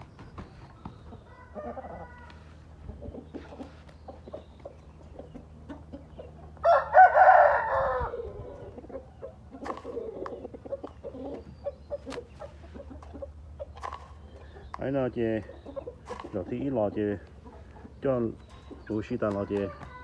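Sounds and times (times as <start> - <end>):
soft clucking: 0.0 - 6.7, 7.7 - 20.0
rooster crowing: 1.3 - 2.6, 6.6 - 8.6.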